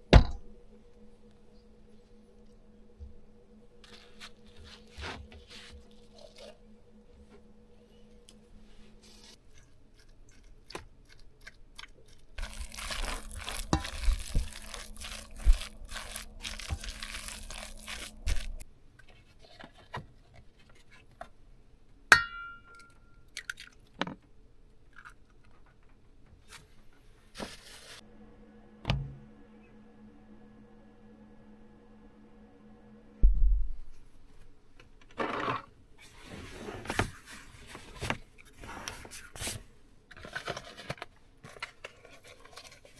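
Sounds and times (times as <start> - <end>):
faint steady hum: 0.0 - 19.0, 24.3 - 40.2
food crinkling and crunching: 9.0 - 21.2, 37.8 - 42.9.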